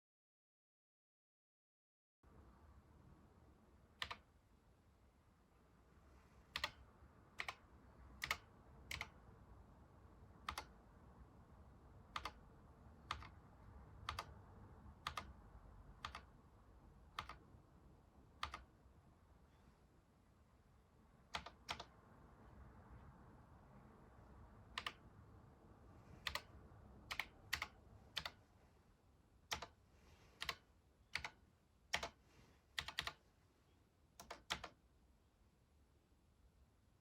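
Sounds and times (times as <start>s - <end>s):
computer keyboard keys clacking: 6.6s - 6.8s, 7.4s - 7.6s, 8.2s - 9.2s, 10.4s - 10.8s, 12.1s - 12.4s, 13.0s - 13.4s, 14.0s - 14.4s, 15.0s - 15.3s, 16.0s - 16.3s, 17.2s - 17.4s, 18.4s - 18.7s, 21.3s - 21.9s, 24.8s - 25.0s, 26.2s - 26.5s, 27.1s - 28.4s, 29.5s - 29.8s, 30.4s - 32.2s, 32.8s - 33.2s, 34.2s - 34.8s.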